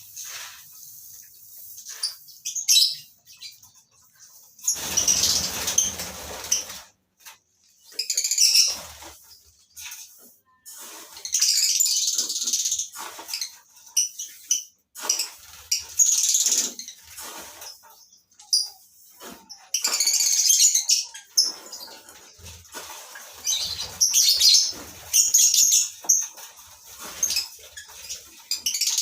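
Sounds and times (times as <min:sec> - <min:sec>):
lovebirds shrill chirps: 0:01.8 - 0:03.7, 0:04.6 - 0:06.7, 0:23.4 - 0:26.2.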